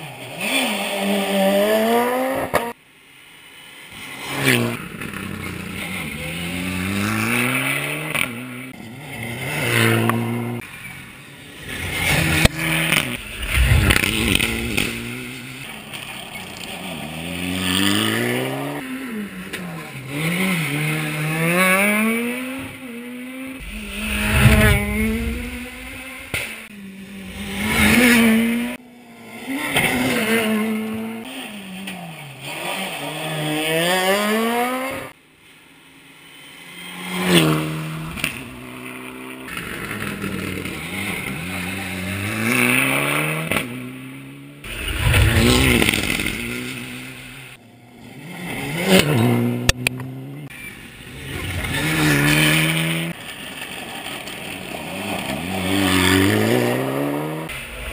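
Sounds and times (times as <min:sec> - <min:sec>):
rally car engine revving: 0:11.6 - 0:35.2, 0:37.0 - 0:57.9
loud low rumbles: 0:13.2 - 0:15.3, 0:23.6 - 0:26.6, 0:57.5 - 0:57.9.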